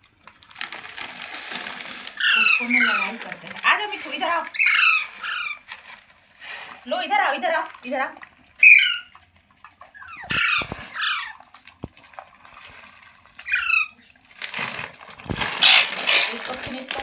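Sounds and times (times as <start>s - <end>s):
rustling noise: 0.6s - 7.8s, 14.4s - 17.0s
parrot squawking: 2.2s - 5.7s, 8.6s - 9.2s, 9.9s - 11.5s, 13.4s - 14.2s, 15.4s - 16.7s.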